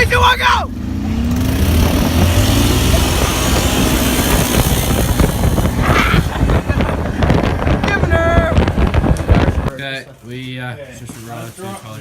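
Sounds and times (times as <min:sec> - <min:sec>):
dirt bike engine accelerating: 0:00.0 - 0:09.7
wind noise on microphone: 0:01.2 - 0:09.8.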